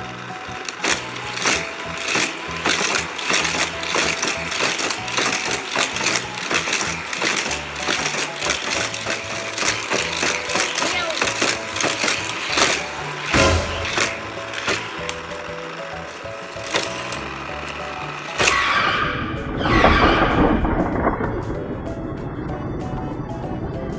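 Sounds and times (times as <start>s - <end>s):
toy cars crashing and rattling: 0.0s - 19.1s.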